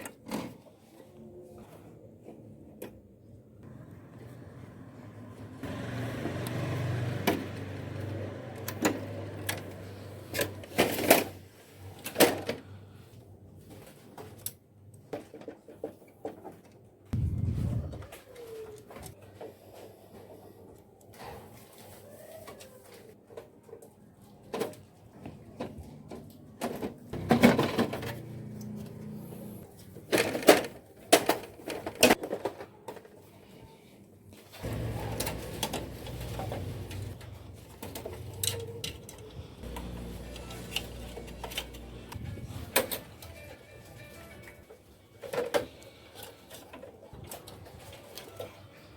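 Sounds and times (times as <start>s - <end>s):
low hum: 17.2s - 18.1s
short low rumble: 17.2s - 18.1s.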